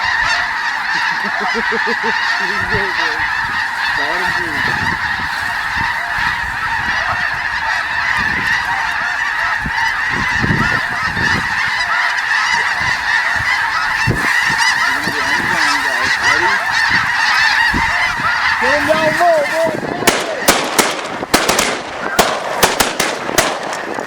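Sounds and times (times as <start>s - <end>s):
geese honking: 0.0s - 24.0s
low thumps: 20.0s - 24.0s.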